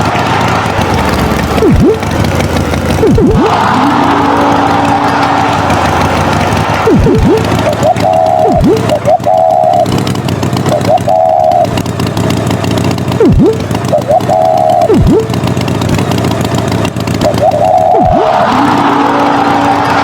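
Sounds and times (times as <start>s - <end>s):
swooping sweep: 0.0s - 2.2s, 3.0s - 9.9s
cartoon engine running: 0.0s - 20.0s
short wavering tone: 1.6s - 2.1s, 6.8s - 10.0s, 10.7s - 11.8s, 13.2s - 15.3s.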